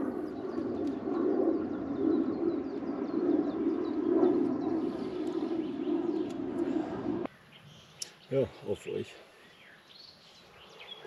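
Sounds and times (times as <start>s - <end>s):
steady low rushing: 0.0s - 7.3s
birds chirping: 0.0s - 11.0s.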